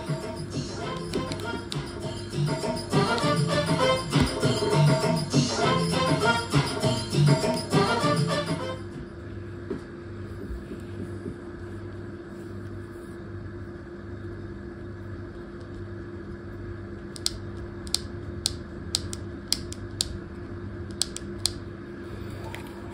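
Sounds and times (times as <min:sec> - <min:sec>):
machine hum with pulsing low note: 0:00.0 - 0:22.9
sharp clicks: 0:17.2 - 0:20.2, 0:20.9 - 0:21.6.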